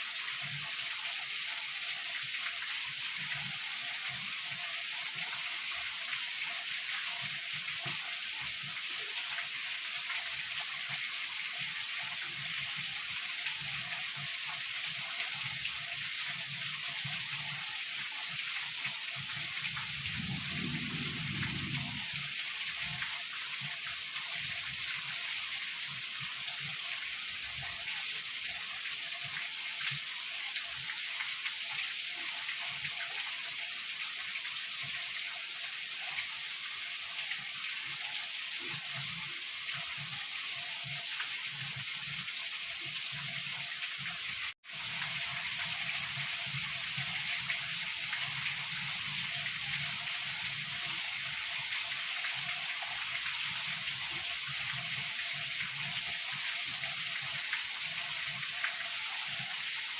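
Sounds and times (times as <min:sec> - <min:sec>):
heavy rain hissing: 0:19.8 - 0:23.1
low rumble: 0:20.1 - 0:22.1.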